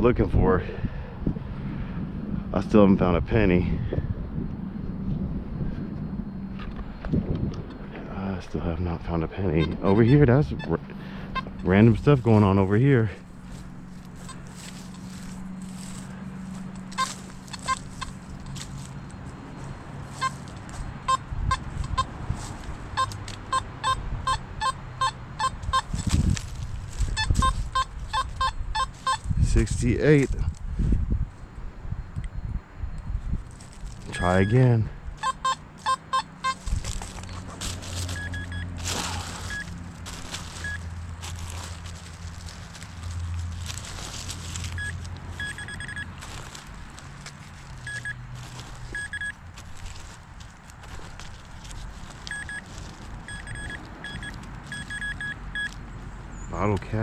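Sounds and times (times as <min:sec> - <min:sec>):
metal detector beeping: 0:09.5 - 0:26.4, 0:27.0 - 0:29.8, 0:33.8 - 0:46.7, 0:47.8 - 0:50.2, 0:50.8 - 0:55.8.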